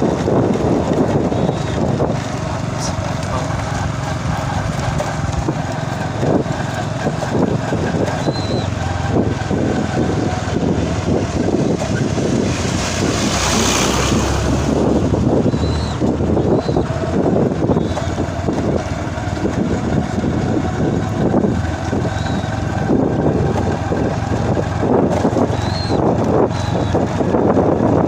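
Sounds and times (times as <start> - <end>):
low vehicle rumble: 0.0 - 28.0
wind buffeting microphone: 0.0 - 28.0.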